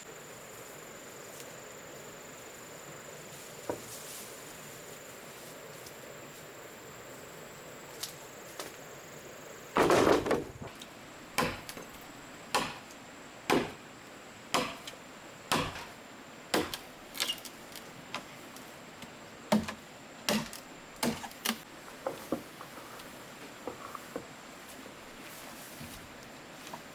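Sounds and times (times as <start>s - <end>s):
chopping wood: 9.8s - 10.8s, 11.4s - 11.9s, 12.5s - 13.8s, 14.5s - 17.4s, 19.5s - 21.6s.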